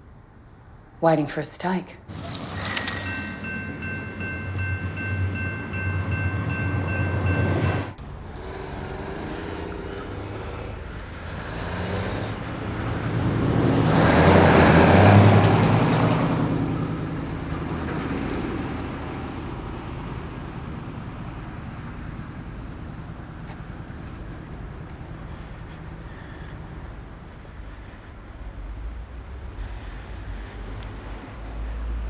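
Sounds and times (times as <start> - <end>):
steady tones: 2.1 - 7.2
low hum: 2.1 - 14.1
vehicle passing by: 8.0 - 20.7.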